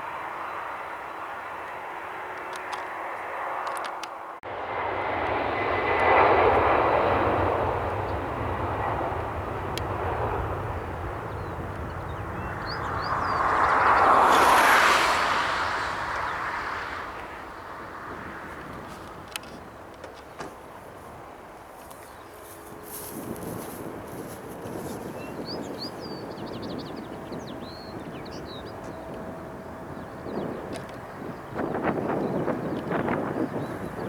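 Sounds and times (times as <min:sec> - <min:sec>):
jet airliner engines rushing: 0:00.0 - 0:34.0.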